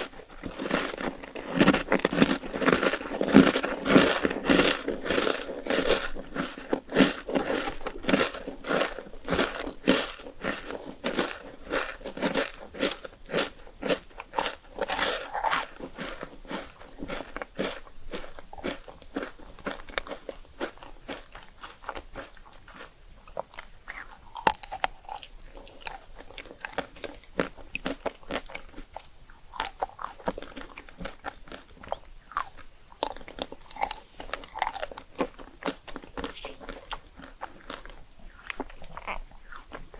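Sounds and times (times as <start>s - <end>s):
chewing crisp rice cakes: 0.0s - 39.9s.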